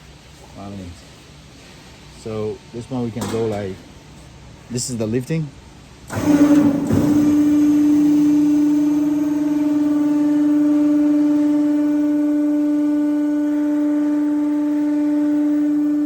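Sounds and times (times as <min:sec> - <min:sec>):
machine lifting motor humming: 0:06.0 - 0:16.0.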